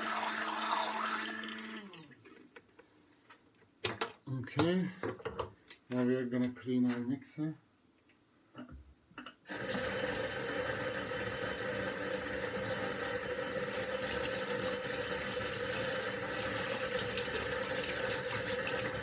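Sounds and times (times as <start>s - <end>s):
kitchen tap running: 0.0s - 2.2s, 9.5s - 19.0s.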